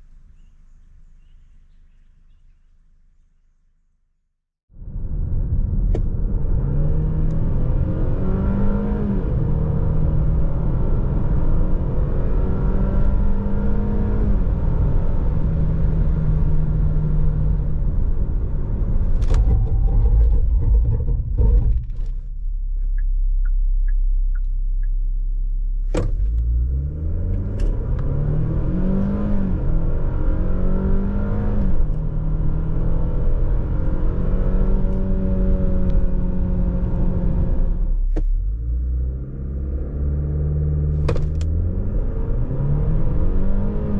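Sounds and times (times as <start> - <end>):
car engine accelerating through gears: 5.2 - 22.2, 25.8 - 43.9.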